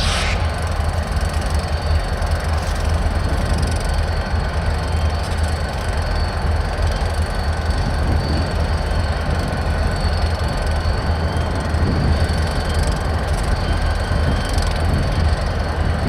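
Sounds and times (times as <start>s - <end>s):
freight train rumbling: 0.0s - 16.0s.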